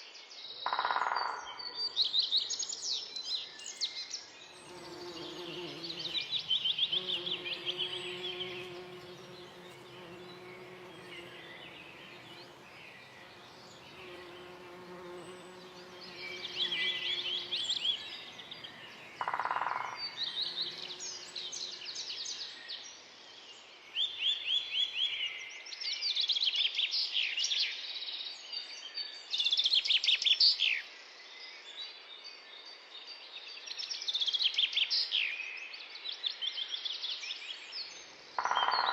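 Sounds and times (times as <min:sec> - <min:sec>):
songbirds singing: 0:00.0 - 0:38.9
flying insect buzzing: 0:04.6 - 0:21.8.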